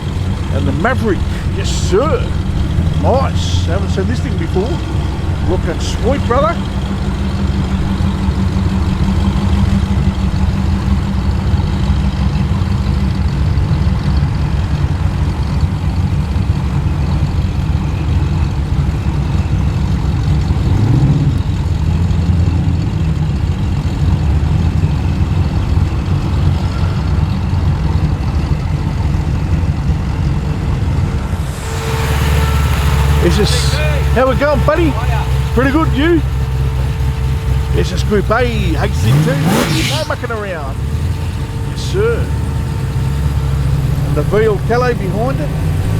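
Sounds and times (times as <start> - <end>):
car engine low rumble: 0.0 - 45.9.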